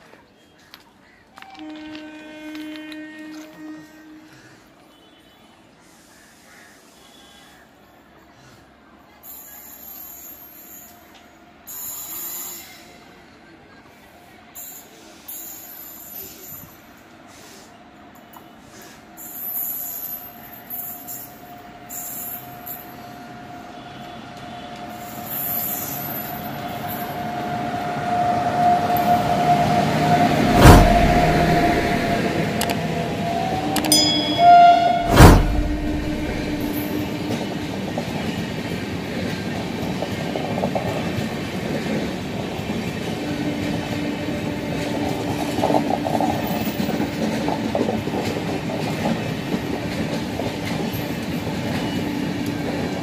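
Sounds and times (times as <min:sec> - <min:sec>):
train horn: 0:01.3 - 0:05.6, 0:22.6 - 0:37.9
train coaches rumbling and clattering: 0:09.2 - 0:53.0
locomotive passing thumps: 0:30.1 - 0:34.0, 0:35.0 - 0:37.1.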